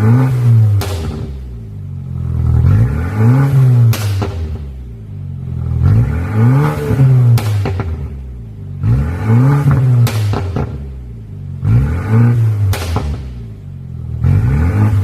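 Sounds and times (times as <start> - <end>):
car engine revving: 0.0 - 15.0
exhaust pops and crackles: 0.1 - 1.6, 2.2 - 4.9, 6.8 - 8.4, 9.6 - 11.0, 12.6 - 13.5.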